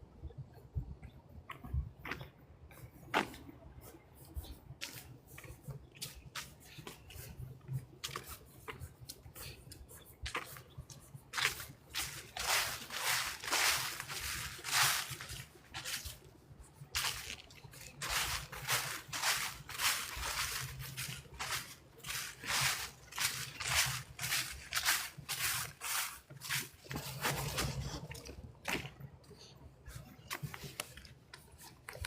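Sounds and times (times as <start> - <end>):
footsteps crunching dry leaves: 10.3 - 28.9.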